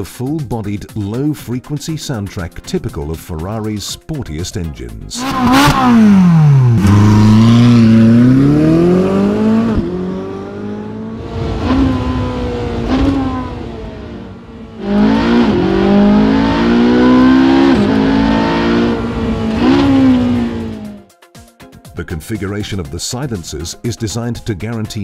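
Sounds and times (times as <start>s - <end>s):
car engine revving hard: 5.2s - 21.0s.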